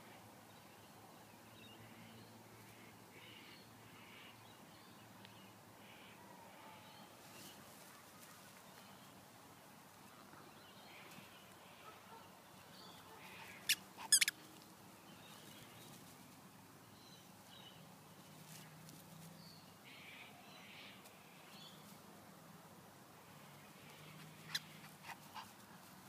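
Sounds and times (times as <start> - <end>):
high-pitched bird chirps: 13.7 - 14.3.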